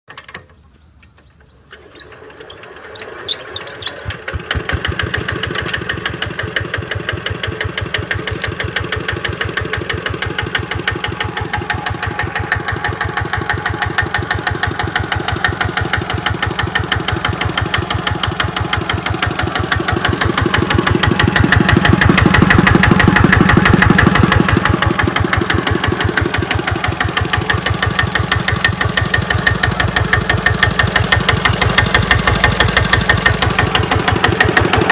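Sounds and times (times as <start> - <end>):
diesel tractor engine running: 0.2 - 34.9.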